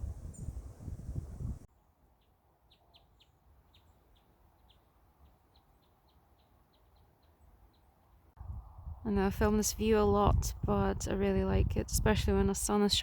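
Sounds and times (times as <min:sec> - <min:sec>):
low wind rumble: 0:00.0 - 0:01.7, 0:08.4 - 0:13.0
faint songbird chirps: 0:00.0 - 0:08.4.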